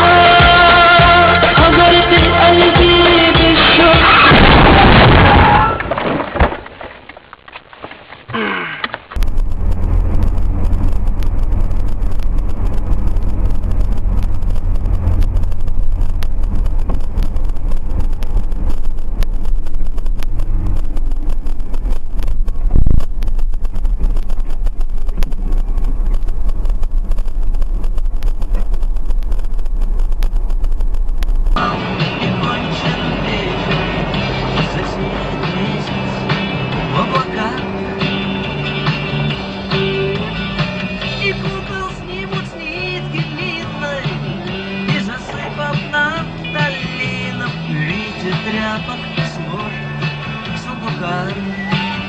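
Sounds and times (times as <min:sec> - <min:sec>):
music: 0:00.0 - 0:04.4, 0:31.6 - 0:52.0
car road rumble: 0:00.0 - 0:52.0
small clicks and rattles: 0:07.0 - 0:31.6.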